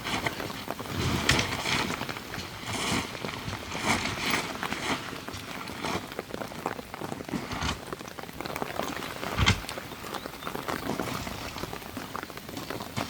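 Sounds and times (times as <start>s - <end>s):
rain pattering: 0.0s - 13.0s
dull thump: 9.4s - 9.7s.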